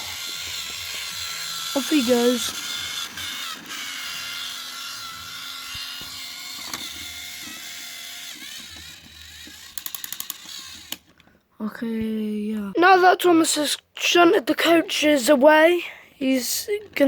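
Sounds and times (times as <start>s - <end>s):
toy train motor whirring: 0.0s - 11.3s
rattle of clicks: 8.7s - 11.3s.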